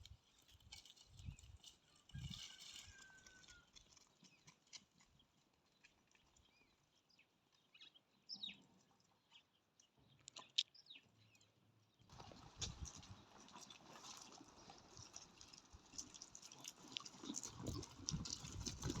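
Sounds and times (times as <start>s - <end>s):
rustle: 0.0s - 4.9s.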